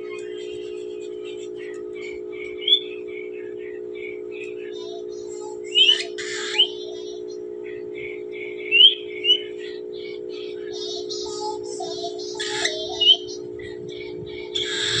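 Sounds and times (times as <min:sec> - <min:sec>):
steady low hum: 0:00.0 - 0:15.0
cockatiels chirping and squawking: 0:10.8 - 0:13.4.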